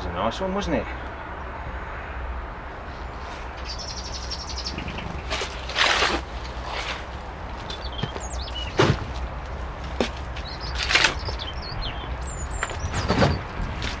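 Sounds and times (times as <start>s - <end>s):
robin singing: 2.8s - 14.0s
loud rustling: 3.9s - 14.0s.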